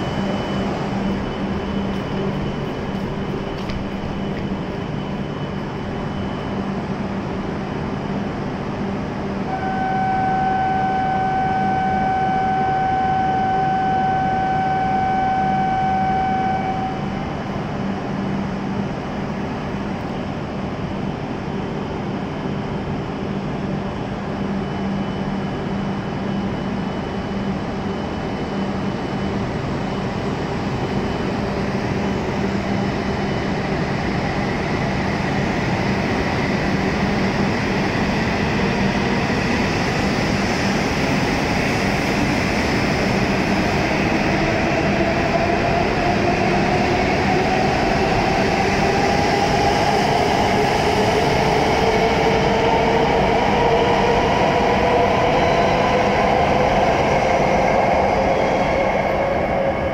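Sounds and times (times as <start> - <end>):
train humming: 0.0 - 59.9
train running noise: 0.0 - 59.9
buzzer tone: 9.5 - 17.1.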